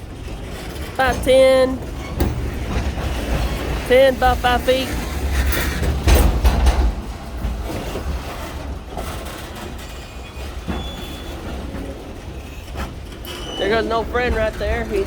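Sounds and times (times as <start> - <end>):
train rumbling: 0.0 - 15.0
couplers clanking: 12.8 - 15.0.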